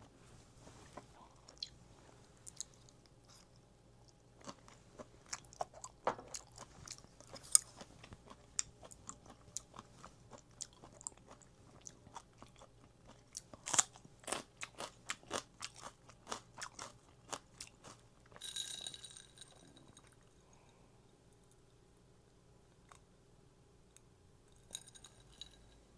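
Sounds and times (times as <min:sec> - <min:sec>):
crunchy wet chewing: 0:02.4 - 0:18.4.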